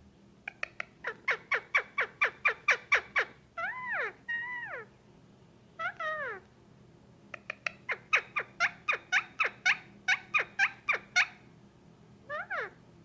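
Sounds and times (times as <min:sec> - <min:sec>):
parakeet calling: 0:00.4 - 0:04.9, 0:05.8 - 0:06.4, 0:07.3 - 0:11.5, 0:12.3 - 0:12.8.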